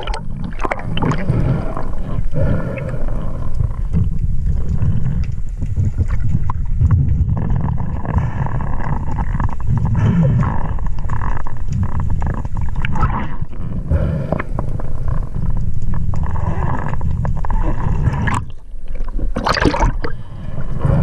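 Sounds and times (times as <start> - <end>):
water rushing and sloshing: 0.0 - 10.1, 11.8 - 21.0
continuous low rumble: 0.0 - 21.0
heavy breathing through a snorkel: 1.2 - 5.6, 13.6 - 15.5, 20.0 - 21.0.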